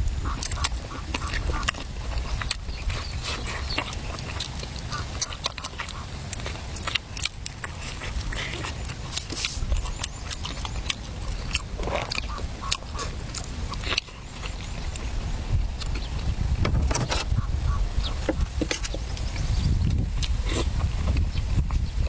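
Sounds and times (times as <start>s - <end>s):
person crunching and chewing: 0.0s - 16.4s, 18.1s - 22.0s.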